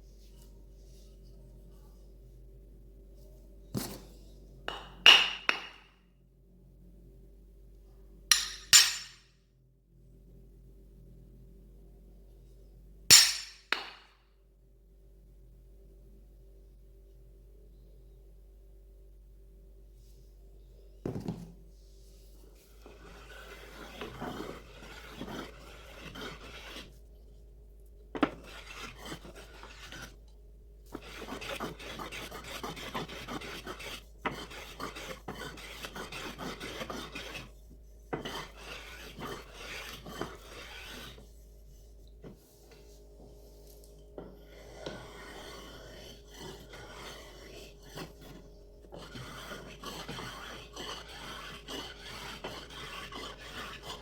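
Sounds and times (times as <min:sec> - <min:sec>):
rasp scraping wood: 0:22.8 - 0:26.9, 0:28.2 - 0:30.2, 0:30.9 - 0:41.3, 0:44.4 - 0:54.0.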